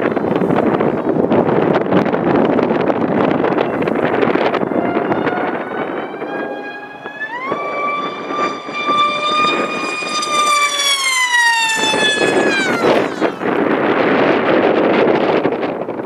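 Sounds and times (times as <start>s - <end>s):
wind buffeting microphone: 0.0s - 16.0s
electric motor and propeller whining: 0.1s - 16.0s.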